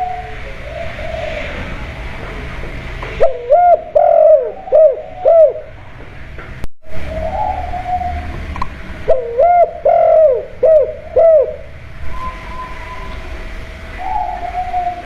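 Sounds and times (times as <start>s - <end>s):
dove cooing: 0.0s - 1.9s, 3.2s - 5.8s, 7.0s - 8.5s, 9.1s - 15.0s.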